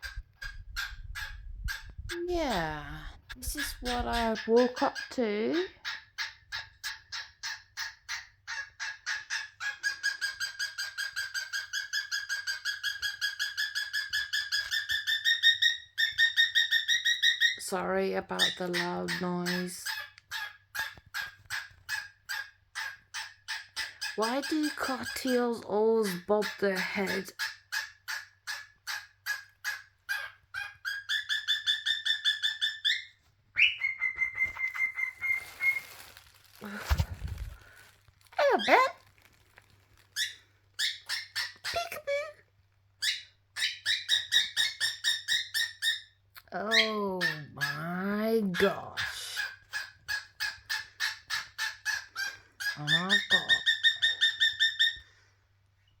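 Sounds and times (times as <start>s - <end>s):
cockatiel chirping: 0.0s - 17.6s, 18.4s - 25.5s, 26.1s - 36.1s, 40.2s - 42.2s, 43.0s - 47.9s, 48.6s - 55.1s.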